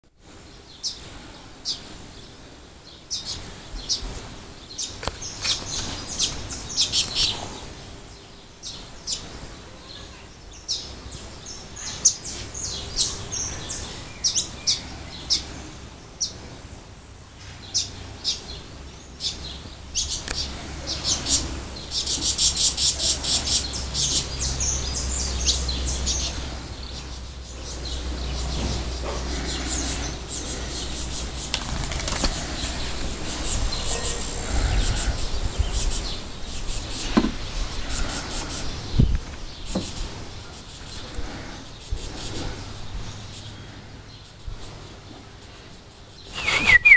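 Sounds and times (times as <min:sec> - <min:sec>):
canary chirping: 0:46.1 - 0:46.9.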